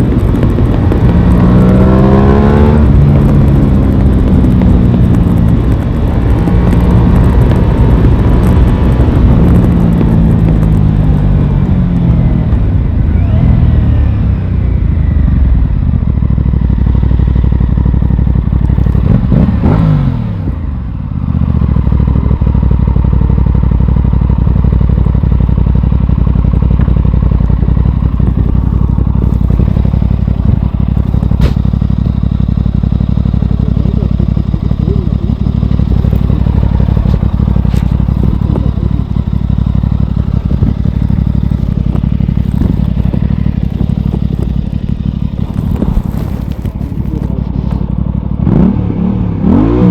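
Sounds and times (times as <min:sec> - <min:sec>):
motorcycle engine: 0:00.0 - 0:49.9.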